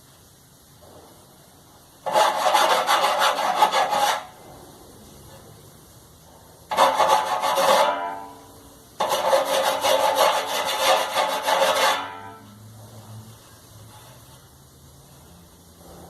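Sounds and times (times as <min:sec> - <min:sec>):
file rasping on sheet metal: 0:02.0 - 0:04.4, 0:06.7 - 0:08.4, 0:09.0 - 0:12.5.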